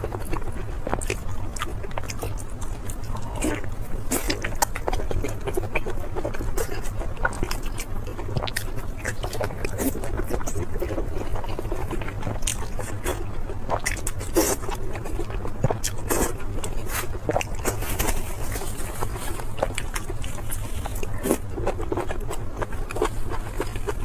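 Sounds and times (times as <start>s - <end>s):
crunchy chewing and mouth smacks: 0.0s - 24.0s
steady low hum: 0.0s - 24.0s.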